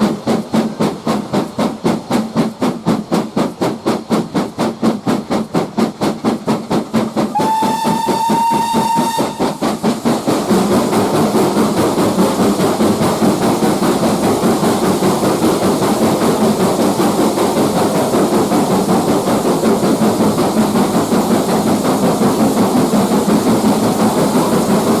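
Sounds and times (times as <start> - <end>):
steam locomotive exhaust beats: 0.0 - 25.0
steam whistle: 7.3 - 9.7.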